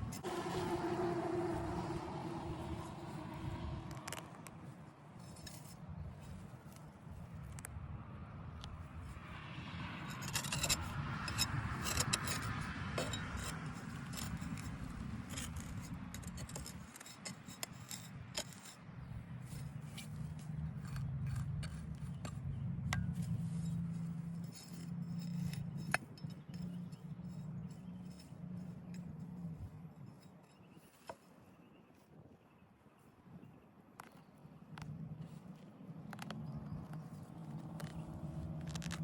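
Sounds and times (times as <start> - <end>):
hand tool scraping: 3.9 - 7.0, 10.0 - 31.6, 37.1 - 39.0.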